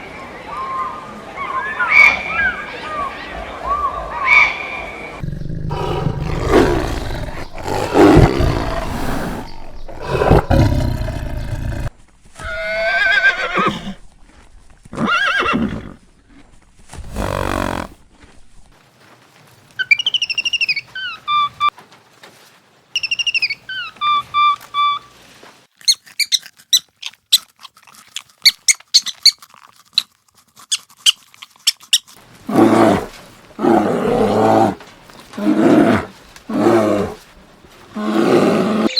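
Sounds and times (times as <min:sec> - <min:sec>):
loud rough animal calls: 0:05.2 - 0:14.0, 0:17.0 - 0:18.0.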